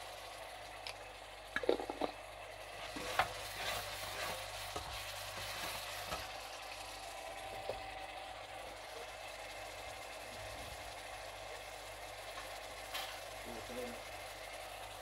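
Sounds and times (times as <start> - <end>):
onions sizzling in oil: 0.0 - 15.0
metal spatula scraping a pan: 2.8 - 5.8.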